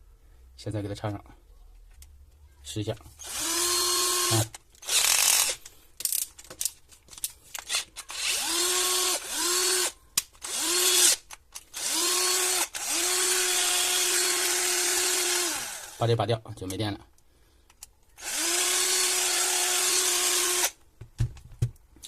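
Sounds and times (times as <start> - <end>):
drill motor whining: 3.2 - 5.6, 8.1 - 11.2, 11.8 - 16.0, 18.2 - 20.8.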